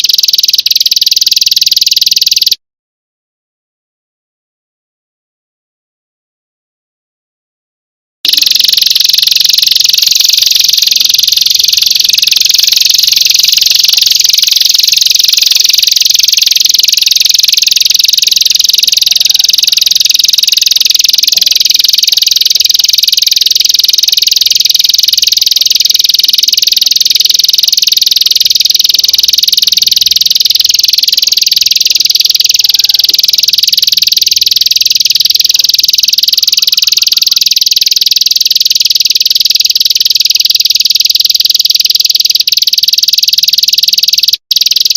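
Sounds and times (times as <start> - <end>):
high-pitched buzzing bird trill: 8.3 - 27.4.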